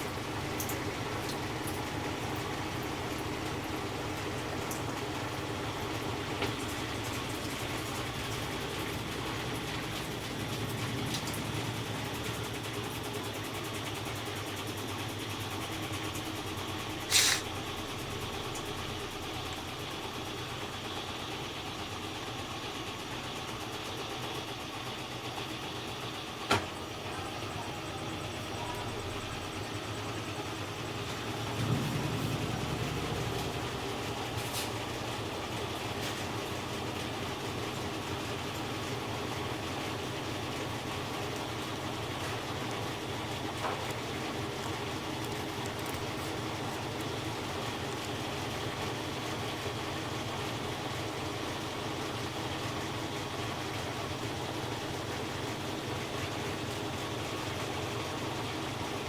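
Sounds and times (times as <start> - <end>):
washing machine spinning: 0.0 - 59.0
deep rumble: 30.9 - 35.4.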